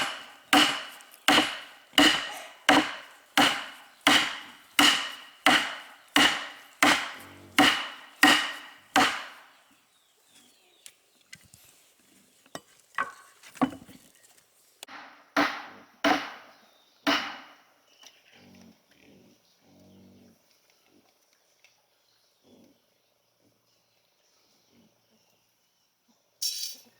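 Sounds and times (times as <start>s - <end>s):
hand tool striking wood: 0.0s - 9.5s, 12.6s - 14.0s, 14.8s - 16.5s, 17.1s - 17.5s.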